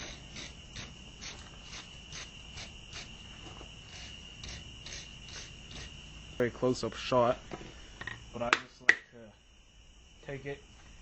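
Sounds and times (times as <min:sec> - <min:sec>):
wire brush scrubbing steel: 0:00.0 - 0:03.2, 0:03.8 - 0:06.0.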